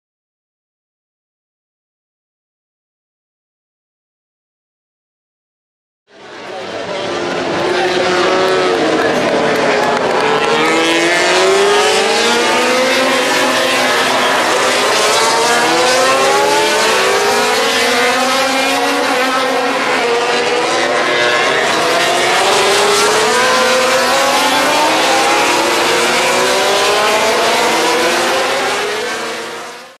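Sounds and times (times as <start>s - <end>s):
racing motorcycles accelerating: 6.2s - 30.0s.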